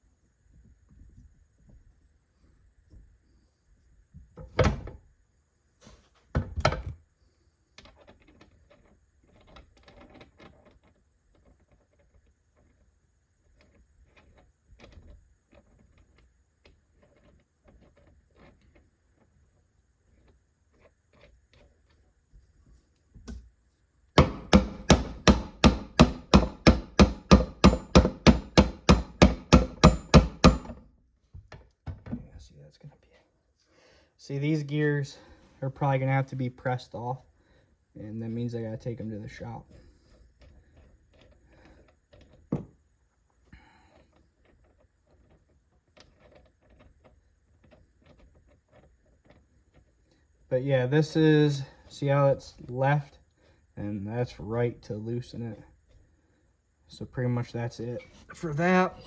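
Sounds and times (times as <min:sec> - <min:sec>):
hammer striking metal: 0:24.2 - 0:30.8.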